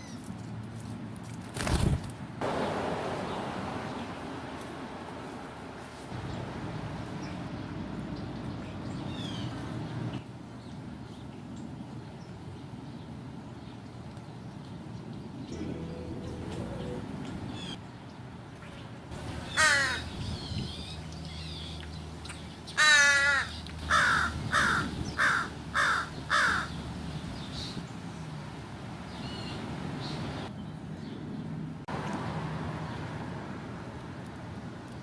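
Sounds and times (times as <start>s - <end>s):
crows cawing: 19.5s - 20.1s, 22.8s - 26.7s.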